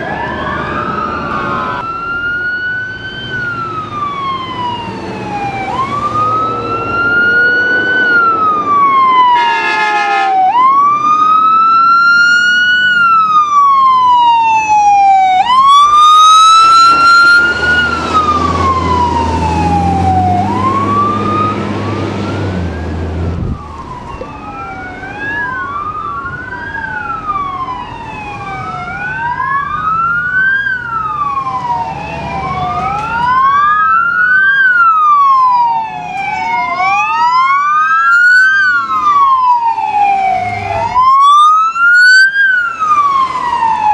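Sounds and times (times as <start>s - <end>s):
siren wailing: 0.0s - 43.9s
vehicle horn blasts: 9.3s - 10.4s.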